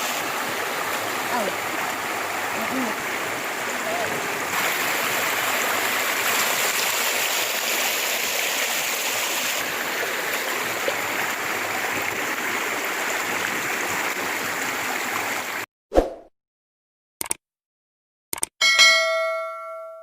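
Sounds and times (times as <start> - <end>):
river water rushing: 0.0 - 15.6.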